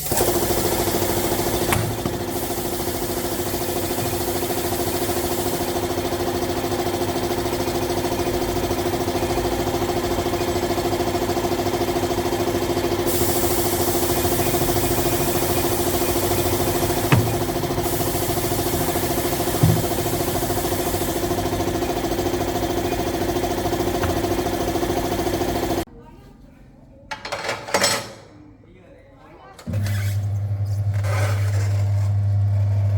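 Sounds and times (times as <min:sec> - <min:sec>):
motorcycle engine idling: 0:00.1 - 0:25.8.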